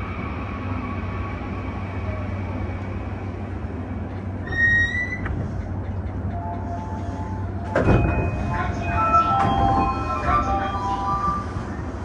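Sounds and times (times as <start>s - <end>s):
train interior low rumble: 0.0s - 12.0s
train clunk: 4.0s - 11.6s
brake squeal: 4.4s - 5.3s.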